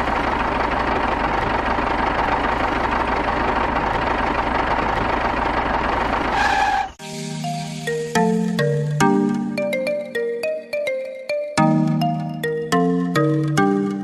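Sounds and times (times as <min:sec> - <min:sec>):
small engine knocking: 0:00.0 - 0:06.3.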